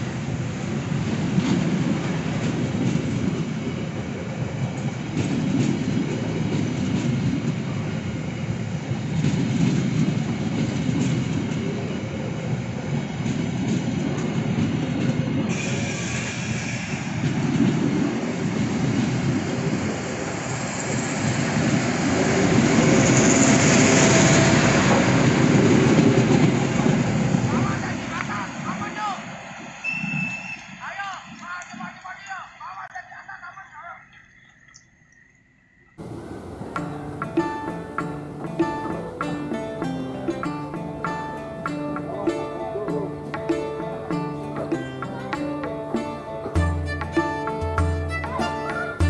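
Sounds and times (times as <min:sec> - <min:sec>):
train wheels clattering on rails: 0:00.0 - 0:32.2, 0:36.0 - 0:46.7
high-pitched wheel squeal: 0:29.8 - 0:30.8.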